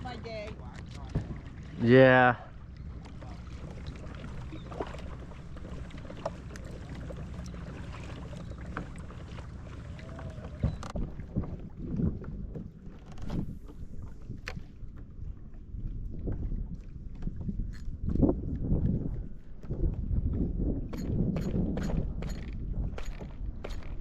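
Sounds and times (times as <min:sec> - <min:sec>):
water lapping around kayak: 0:00.0 - 0:24.0
knocks and splashes: 0:00.1 - 0:18.9
wind on microphone: 0:02.9 - 0:24.0.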